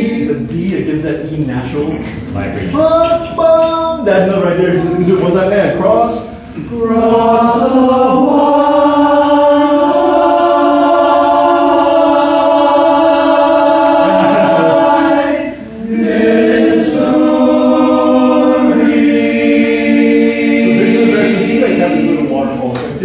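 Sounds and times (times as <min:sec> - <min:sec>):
male chorus singing a cappella: 0:06.6 - 0:22.6.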